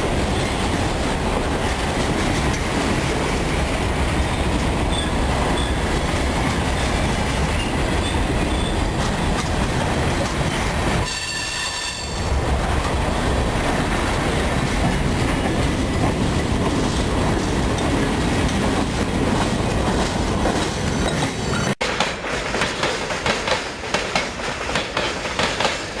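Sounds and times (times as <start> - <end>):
freight train rumbling past: 0.0 - 26.0
wheels clattering over rail joints: 0.0 - 26.0
high wheel squeal: 11.0 - 12.3.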